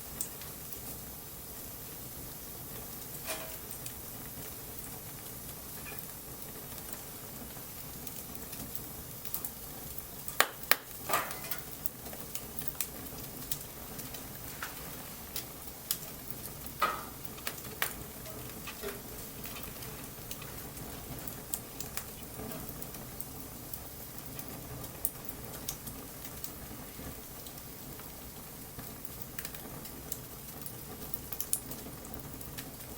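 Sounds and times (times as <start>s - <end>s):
wood fire crackling: 0.0s - 32.9s.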